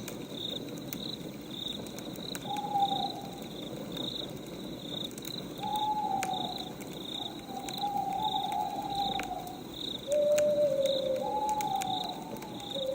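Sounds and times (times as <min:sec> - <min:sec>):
crickets chirping: 0:00.0 - 0:12.9
faint wood fire crackles: 0:00.0 - 0:12.9
owl hooting: 0:02.4 - 0:03.4, 0:05.6 - 0:12.9.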